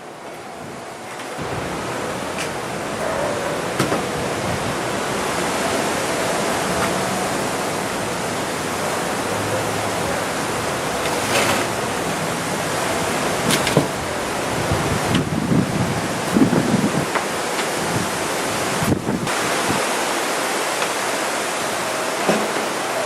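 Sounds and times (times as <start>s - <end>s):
wind on microphone: 12.8s - 20.0s.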